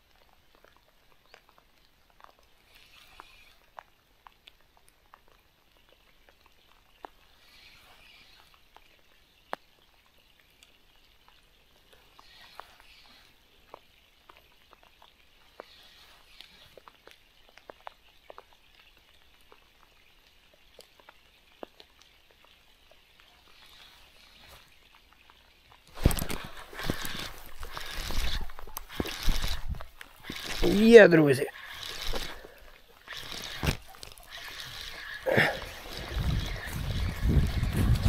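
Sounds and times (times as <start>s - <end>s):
faint rain patter: 0.0s - 38.0s
raindrop ticks: 8.7s - 30.8s.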